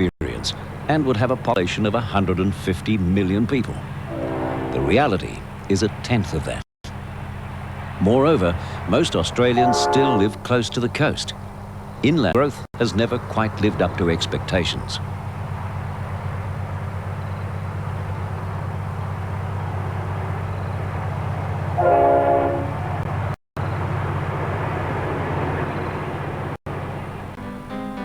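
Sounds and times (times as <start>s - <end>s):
train rumbling: 0.0s - 28.0s
train horn blast: 4.1s - 5.4s, 9.4s - 10.6s, 21.8s - 23.0s.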